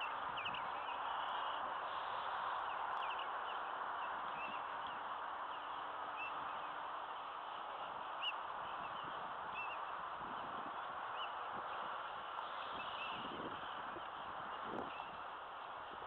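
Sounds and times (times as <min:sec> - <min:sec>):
small birds chirping: 0:00.0 - 0:15.4.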